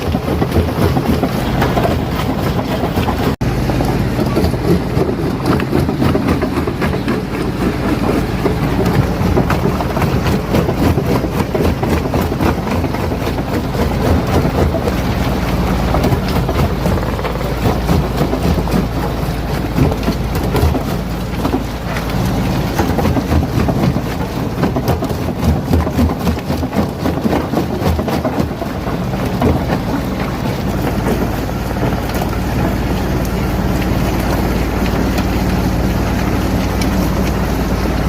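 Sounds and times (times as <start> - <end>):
rocks cracking and clattering: 0.0 - 38.0.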